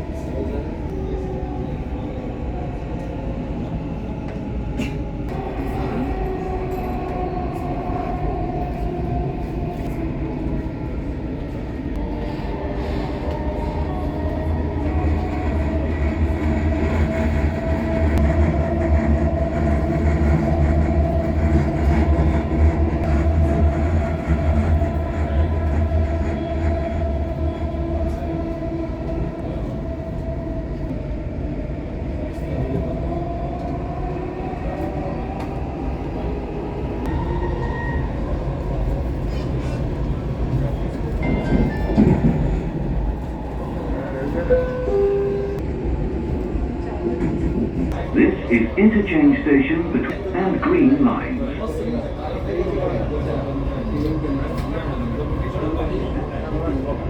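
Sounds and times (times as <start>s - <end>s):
deep train rumble: 0.0s - 57.0s
electric train whine: 5.3s - 39.4s.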